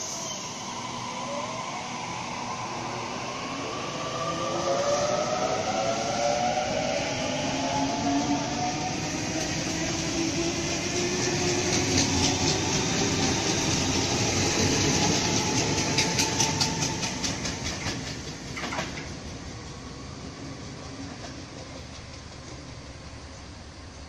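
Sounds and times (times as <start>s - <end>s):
electric train rolling past: 0.0s - 24.0s
wheels clicking over rail joints: 11.4s - 19.2s.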